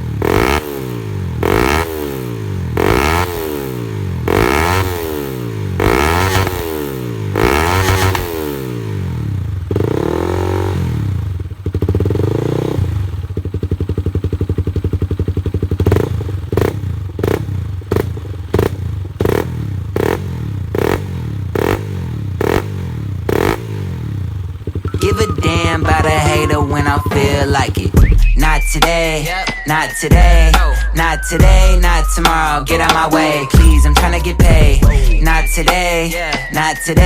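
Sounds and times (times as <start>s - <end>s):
motorcycle engine revving: 0.0s - 30.8s
throttle blips: 24.9s - 29.0s.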